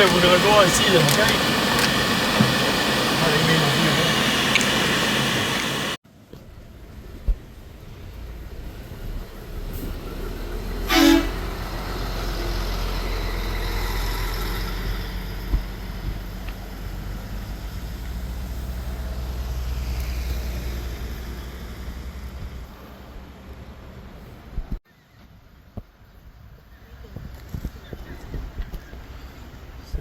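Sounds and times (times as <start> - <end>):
van engine and road rumble: 0.0 - 30.0
short horn beep: 10.9 - 11.4.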